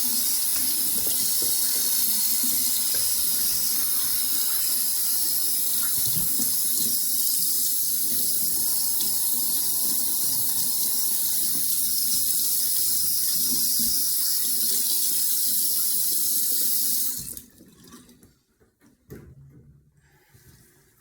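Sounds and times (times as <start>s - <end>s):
tap running into sink: 0.0s - 7.4s.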